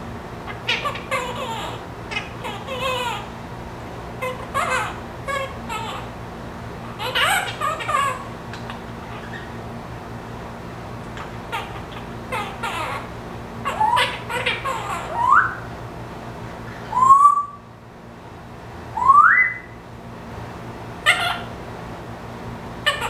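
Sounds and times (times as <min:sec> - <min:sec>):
parrot squawking and chirping: 0:00.4 - 0:03.4, 0:04.1 - 0:06.2, 0:06.8 - 0:09.7, 0:11.0 - 0:15.7, 0:21.0 - 0:21.6
parrot whistles: 0:14.9 - 0:15.7, 0:16.9 - 0:17.7, 0:19.0 - 0:19.8.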